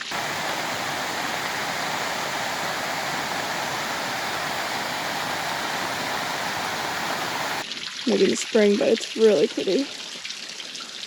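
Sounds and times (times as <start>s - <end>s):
small waterfall rushing: 0.0s - 7.7s.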